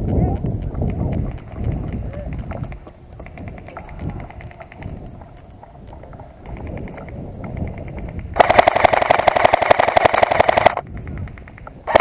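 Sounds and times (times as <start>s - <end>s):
airsoft rifle full-auto burst: 8.4s - 10.8s
distant airsoft fire: 8.4s - 12.0s.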